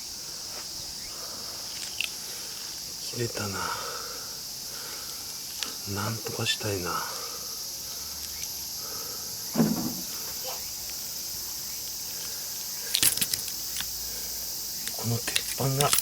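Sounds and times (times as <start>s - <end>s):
insects chirring: 0.0s - 16.0s
sharp clicks from transformer core: 12.8s - 14.0s, 14.8s - 16.0s.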